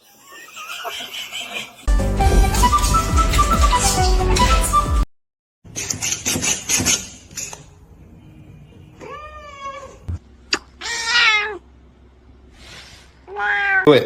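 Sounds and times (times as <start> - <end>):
cat meowing: 9.0 - 10.2, 10.8 - 11.6, 13.2 - 13.9.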